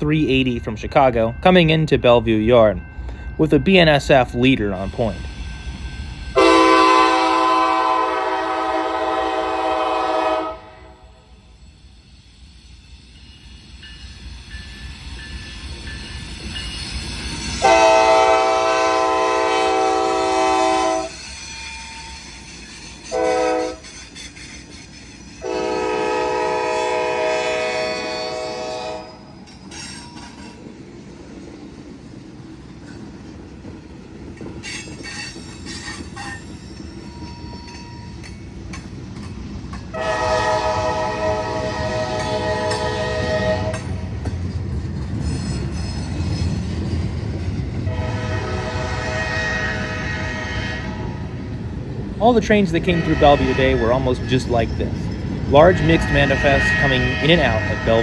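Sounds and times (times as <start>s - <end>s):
train rolling rumble: 0.0s - 58.0s
locomotive air horn blasts: 6.4s - 11.0s, 17.6s - 21.1s, 23.1s - 23.8s, 25.4s - 29.2s, 39.9s - 43.9s, 47.9s - 51.2s, 52.8s - 54.0s, 55.6s - 58.0s.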